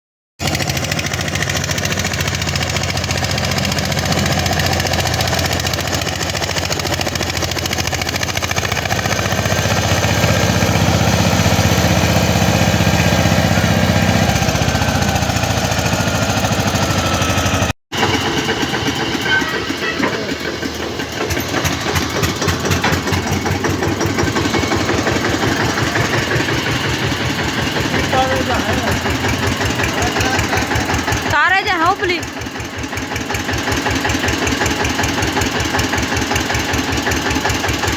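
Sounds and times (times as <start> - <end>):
tractor diesel engine running: 0.4 - 37.9.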